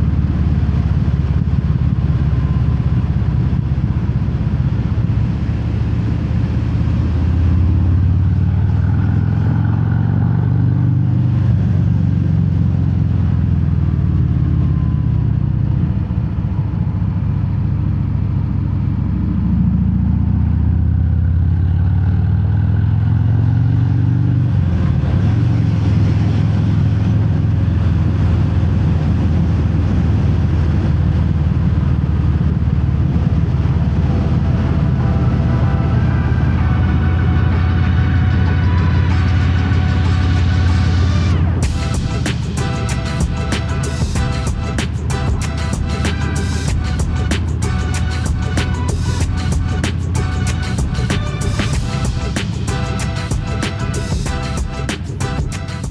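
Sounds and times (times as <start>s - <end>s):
motorcycle engine revving: 31.6s - 55.9s.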